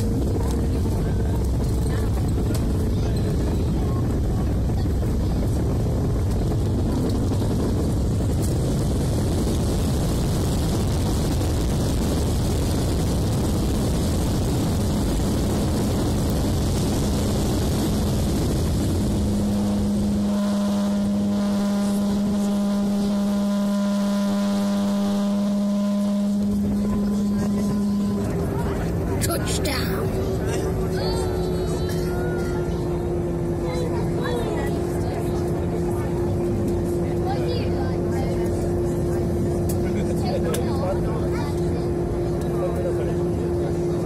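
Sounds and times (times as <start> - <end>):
jet engines rumbling: 0.0 - 44.0
steady hum with overtones: 0.0 - 44.0
rushing air: 5.6 - 22.5.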